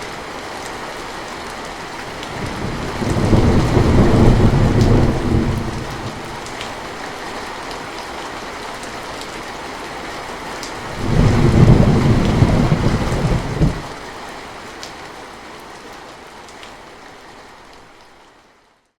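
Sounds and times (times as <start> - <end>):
steady rain falling: 0.0 - 19.0
thunder rumble: 2.2 - 6.8, 10.8 - 14.0.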